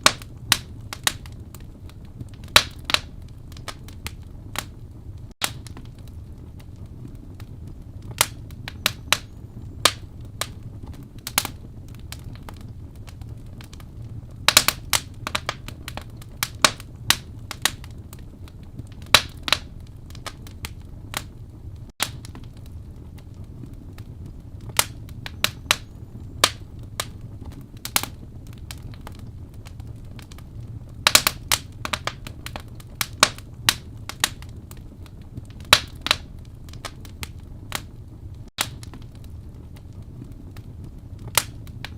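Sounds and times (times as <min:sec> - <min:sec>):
low fire rumble: 0:00.0 - 0:41.9
wood fire crackling and popping: 0:00.0 - 0:41.9.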